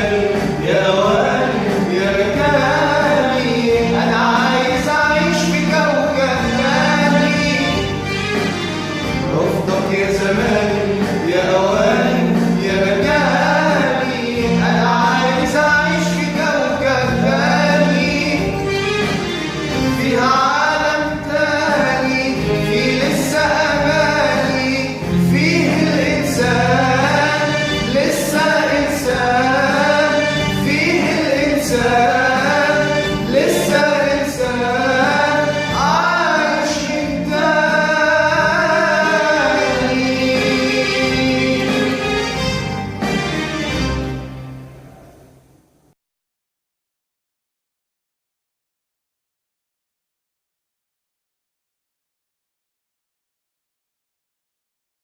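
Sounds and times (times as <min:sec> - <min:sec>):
man singing: 0:00.0 - 0:42.6
instrumental backing with bass: 0:00.0 - 0:45.9.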